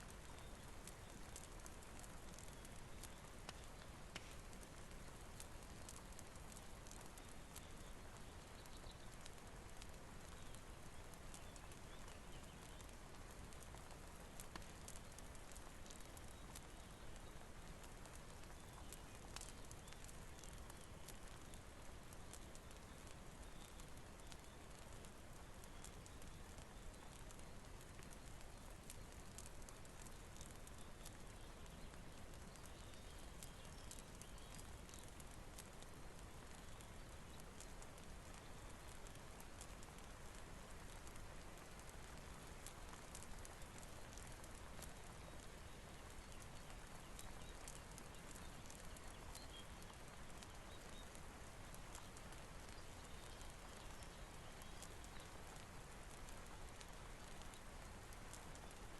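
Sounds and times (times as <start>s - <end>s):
faint steady rain: 0.0s - 58.9s
fire crackling: 0.0s - 58.9s.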